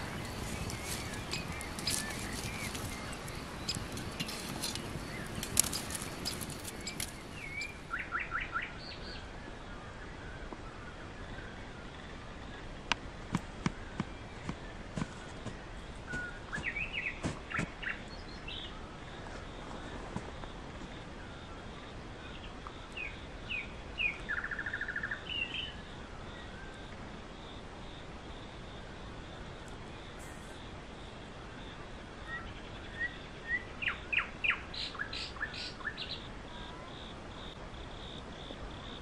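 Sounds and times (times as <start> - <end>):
small birds chirping: 0.0 - 9.3, 13.9 - 18.8, 31.6 - 39.0.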